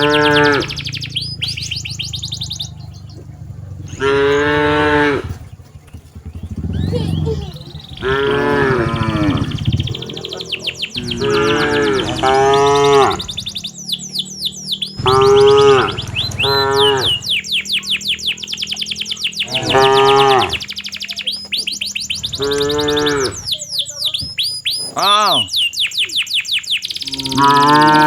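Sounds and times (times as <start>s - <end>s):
cattle mooing: 0.0s - 17.8s, 19.4s - 20.7s, 22.2s - 24.0s, 27.1s - 28.0s
rapid high-pitched chirping: 0.0s - 28.0s.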